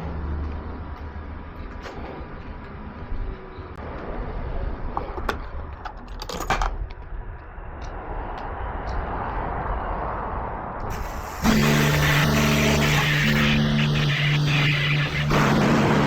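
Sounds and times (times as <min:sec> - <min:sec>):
water spraying onto car: 0:10.9 - 0:16.0.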